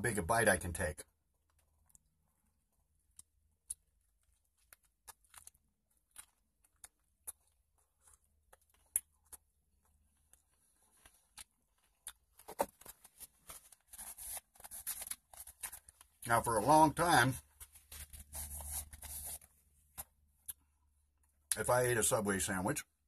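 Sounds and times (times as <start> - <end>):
person chewing with moist clicks: 1.3 - 13.9, 20.0 - 21.6.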